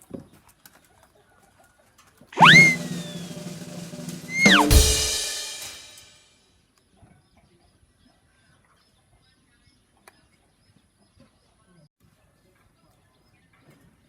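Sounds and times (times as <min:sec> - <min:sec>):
faint bird chirps: 0:02.4 - 0:03.4, 0:04.2 - 0:04.8
cymbal crash ringing: 0:02.4 - 0:06.1.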